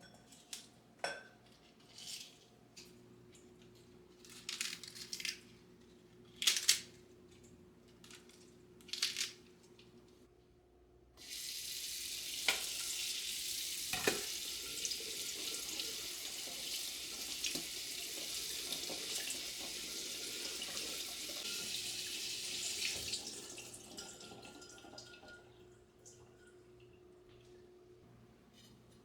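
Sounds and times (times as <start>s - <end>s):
tap water running into sink: 11.2s - 25.5s.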